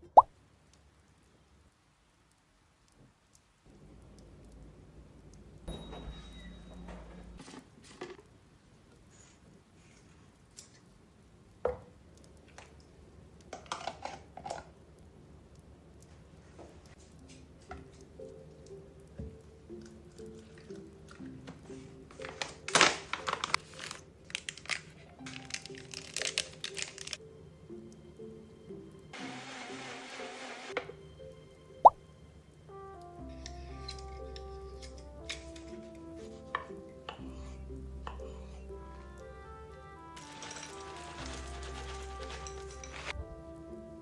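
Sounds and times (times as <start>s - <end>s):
soft music: 16.8s - 44.0s.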